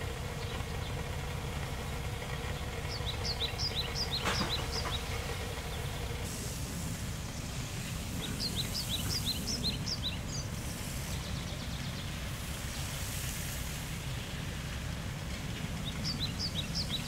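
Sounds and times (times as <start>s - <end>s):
bird singing rising chirps: 2.8s - 6.1s, 7.8s - 12.2s, 15.8s - 17.0s.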